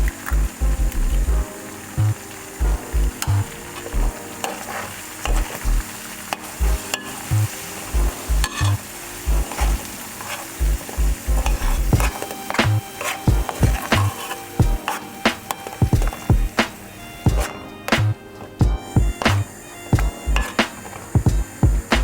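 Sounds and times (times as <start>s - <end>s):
music with pulsing bass: 0.0s - 4.3s, 5.3s - 5.9s, 6.6s - 9.9s, 10.6s - 15.0s, 15.8s - 22.0s
food sizzling in a frying pan: 0.0s - 22.0s
utensil scraping a pan: 3.4s - 5.6s, 6.8s - 18.6s, 20.3s - 21.2s.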